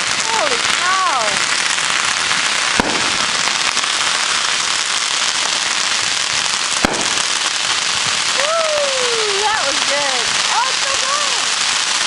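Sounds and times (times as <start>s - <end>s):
firecrackers crackling: 0.0s - 12.0s
sharp firework bang: 2.5s - 8.5s.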